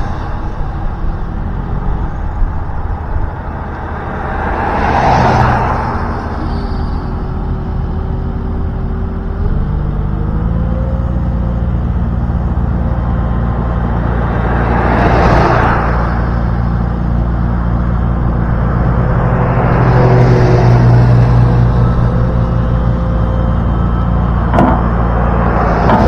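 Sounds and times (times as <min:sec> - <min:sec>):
rushing noise: 0:00.0 - 0:08.2
engine running steadily: 0:00.0 - 0:26.0.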